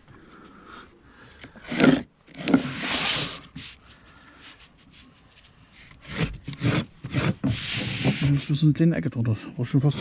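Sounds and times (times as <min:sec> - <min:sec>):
rasping scrape on roofing slate: 0:01.5 - 0:08.6.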